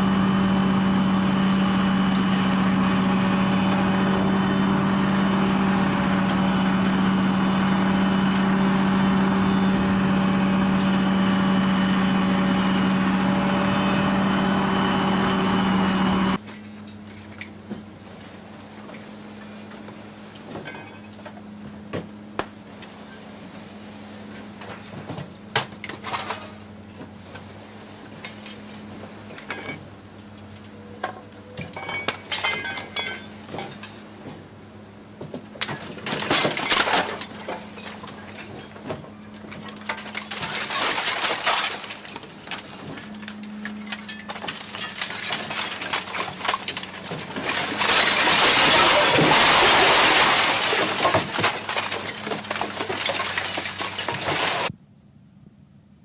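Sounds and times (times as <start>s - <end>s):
steady low hum: 0.0s - 56.0s
glass breaking and clinking: 31.8s - 34.0s, 39.5s - 42.7s, 43.4s - 54.7s
loud crash of glass: 39.9s - 42.3s, 43.8s - 54.7s.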